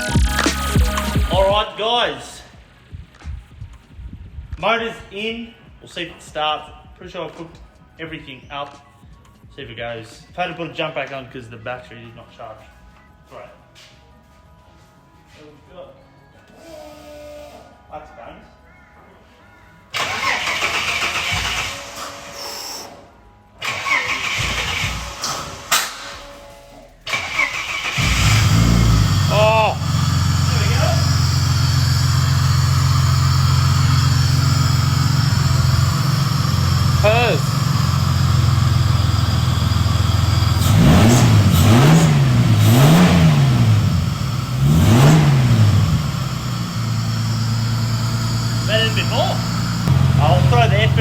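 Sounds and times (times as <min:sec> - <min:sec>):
car engine idling and revving: 0:00.0 - 0:01.8, 0:02.5 - 0:06.0, 0:19.9 - 0:23.0, 0:23.6 - 0:51.0
starter motor cranking: 0:20.0 - 0:22.9, 0:23.6 - 0:43.8.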